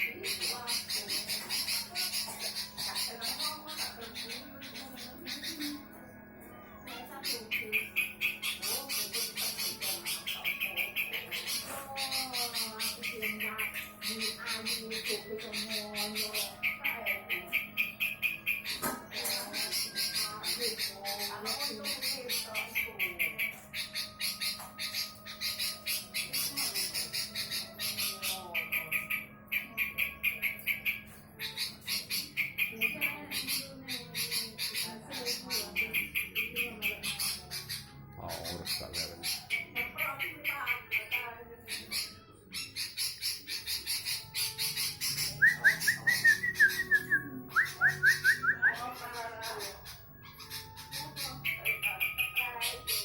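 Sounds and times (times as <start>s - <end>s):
bulbul singing: 0.0s - 53.0s
harsh bird chirps: 0.0s - 53.0s
whistled bird notes: 41.7s - 49.0s.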